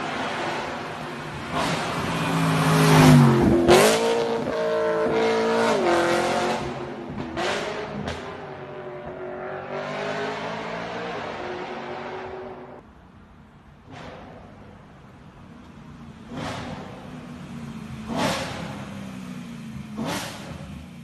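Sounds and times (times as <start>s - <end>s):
car engine revving past: 1.4s - 12.8s.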